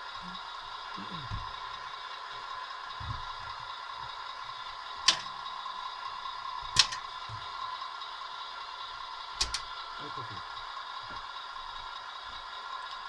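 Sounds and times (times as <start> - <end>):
toy truck motor whine: 0.0 - 13.0.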